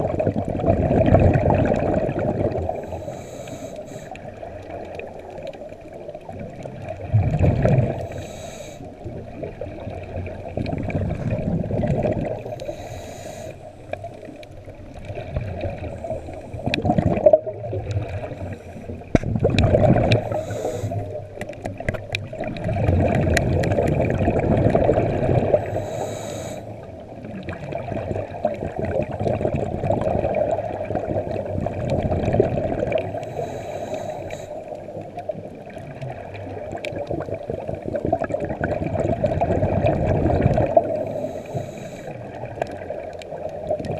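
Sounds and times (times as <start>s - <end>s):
bubbles gurgling underwater: 0.0s - 3.4s, 4.0s - 12.9s, 13.6s - 43.9s
diver breathing through regulator: 2.6s - 4.4s, 7.8s - 9.1s, 12.3s - 14.2s, 18.1s - 19.1s, 20.0s - 21.4s, 25.4s - 26.9s, 33.0s - 34.8s, 40.7s - 42.4s.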